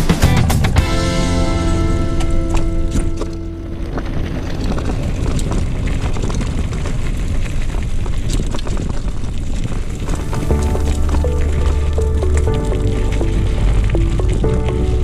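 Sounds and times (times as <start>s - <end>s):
tyre rumble: 0.0s - 15.0s
bike clicks and rattles: 2.0s - 11.6s
wind rushing over microphone: 2.7s - 15.0s.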